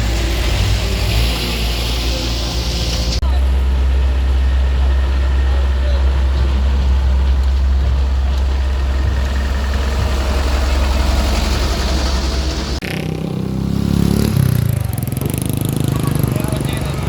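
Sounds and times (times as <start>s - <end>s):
engine low rumble: 0.0s - 17.0s
engine revving: 4.7s - 17.0s.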